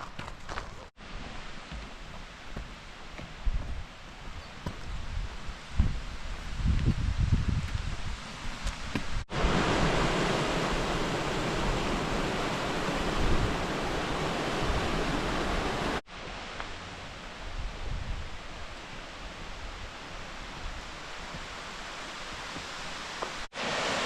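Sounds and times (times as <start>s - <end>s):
waterfall rushing: 9.3s - 16.0s, 20.0s - 24.0s.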